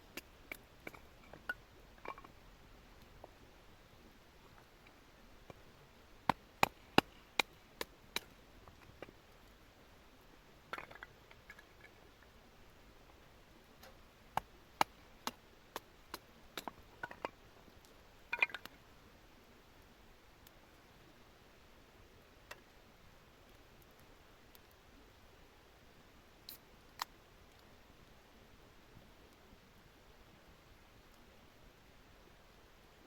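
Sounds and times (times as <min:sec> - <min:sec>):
firewood snapping and knocking: 0:06.2 - 0:09.0.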